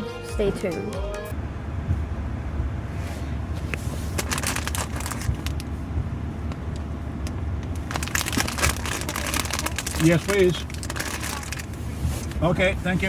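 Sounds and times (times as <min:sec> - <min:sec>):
truck engine rumbling: 0:01.3 - 0:13.0
clicks and crackles: 0:03.6 - 0:12.8.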